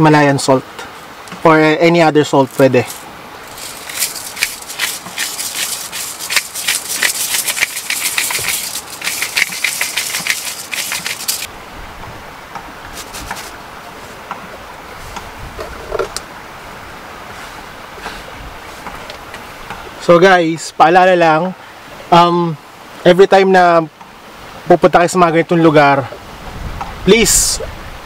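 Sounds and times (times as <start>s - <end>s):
salt grinder crunching: 2.5s - 11.5s, 13.0s - 13.5s.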